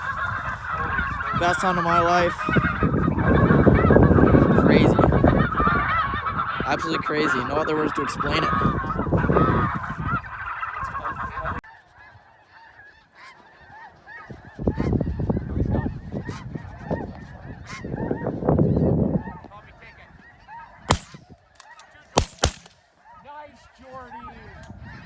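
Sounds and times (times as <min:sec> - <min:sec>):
geese honking: 0:00.0 - 0:23.2
shotgun shot: 0:20.9 - 0:21.3, 0:22.2 - 0:22.8.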